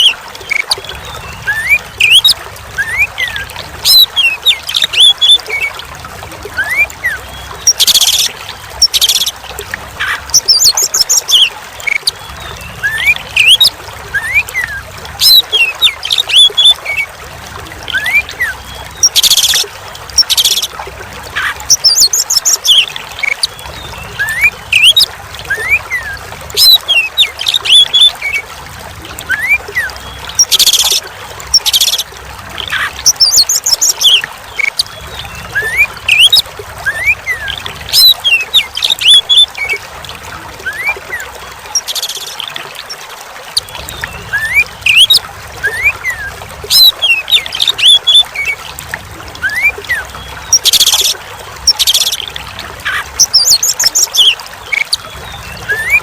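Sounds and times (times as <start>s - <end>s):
bird singing: 0.0s - 5.7s, 6.6s - 9.4s, 10.0s - 17.1s, 21.4s - 28.4s, 29.3s - 32.0s, 32.6s - 39.8s, 49.4s - 56.0s
trickle of running water: 0.0s - 56.0s.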